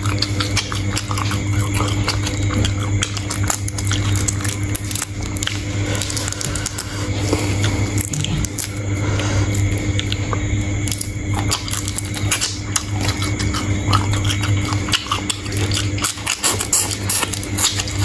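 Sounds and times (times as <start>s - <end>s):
shrimp crunching and chewing: 0.0s - 18.0s
steady low hum: 0.0s - 18.0s.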